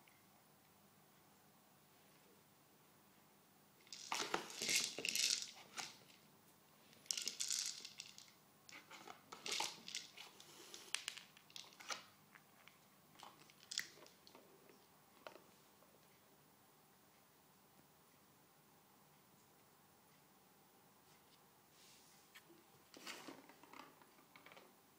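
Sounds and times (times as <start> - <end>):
crinkly toy rustling: 3.9 - 6.1, 7.0 - 12.1.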